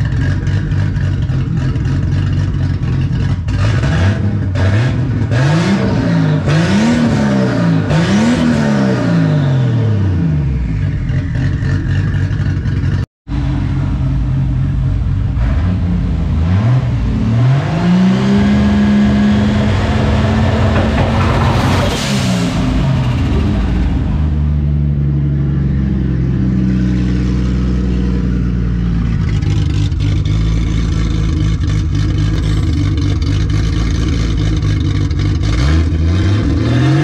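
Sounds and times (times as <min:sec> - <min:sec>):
car engine revving: 0:00.0 - 0:37.0
engine on rev limiter: 0:13.3 - 0:37.0.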